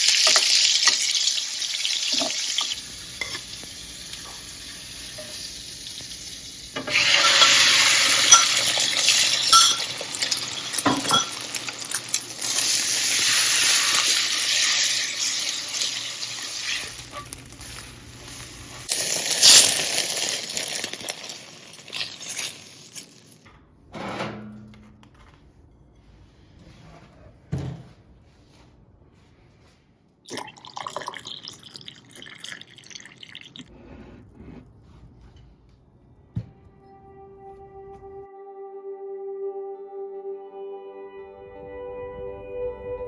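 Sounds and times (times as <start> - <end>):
food sizzling in a hot pan: 0.0 - 23.0
utensil clinking against pan: 6.8 - 11.6.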